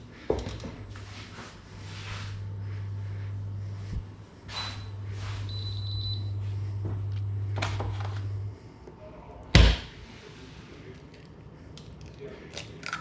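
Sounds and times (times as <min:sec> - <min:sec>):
kitchen appliance humming: 0:02.0 - 0:08.6.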